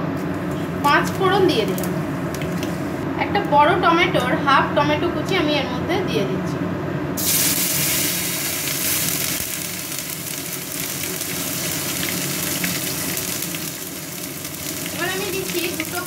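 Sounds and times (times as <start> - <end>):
tomato sizzling in hot oil: 7.2 - 16.0.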